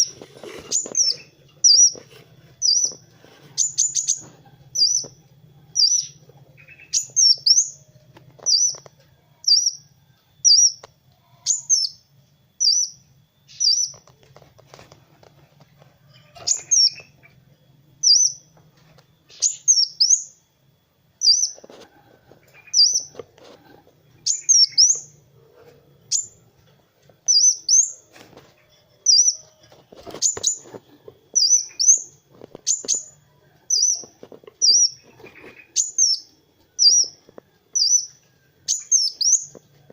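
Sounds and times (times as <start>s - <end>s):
sunbird calling high chips: 0.0s - 9.9s, 10.5s - 14.2s, 16.0s - 17.4s, 18.0s - 18.6s, 19.2s - 20.4s, 21.2s - 21.7s, 22.5s - 23.2s, 24.2s - 25.2s, 27.2s - 37.2s, 37.8s - 39.6s.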